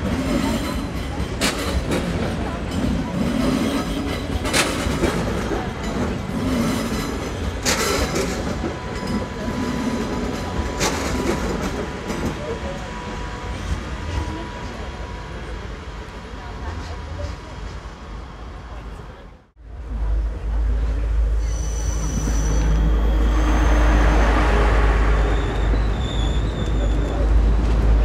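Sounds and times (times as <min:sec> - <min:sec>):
wheels clacking on track: 0:00.0 - 0:14.9
train rumble: 0:00.0 - 0:28.0.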